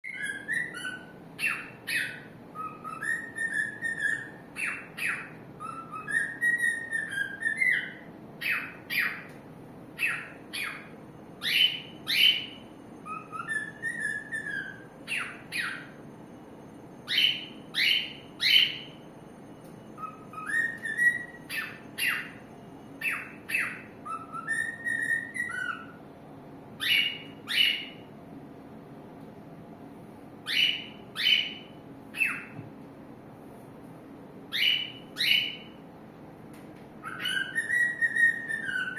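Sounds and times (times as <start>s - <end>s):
cockatiel whistling: 0.0s - 9.4s, 10.0s - 16.0s, 17.0s - 19.0s, 19.9s - 26.0s, 26.8s - 28.1s, 30.4s - 32.6s, 34.5s - 35.8s, 37.0s - 38.9s.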